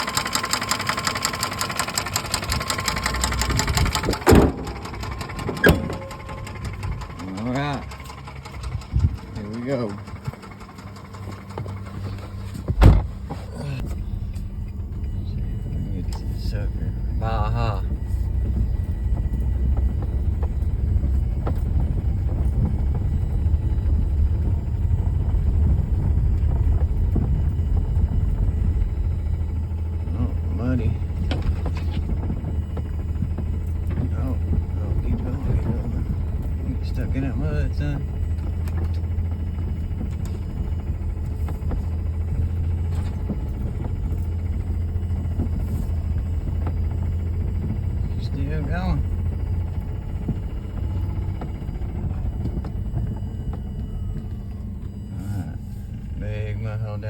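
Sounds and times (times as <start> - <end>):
rapid even ticking: 0.0 - 12.3
knocks and rattles from bumps: 0.0 - 55.0
car engine running: 0.0 - 57.0
loud thump: 3.9 - 6.5, 12.6 - 13.3.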